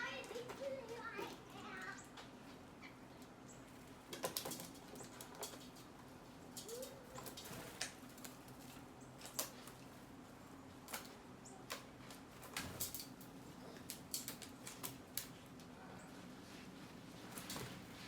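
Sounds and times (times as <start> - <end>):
birds pecking: 0.0 - 18.0
wing flutters: 6.5 - 9.8.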